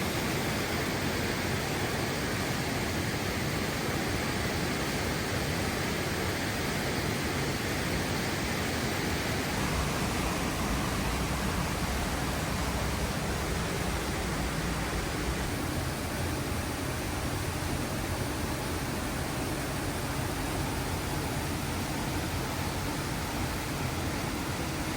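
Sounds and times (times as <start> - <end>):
waterfall roar: 0.0 - 24.9.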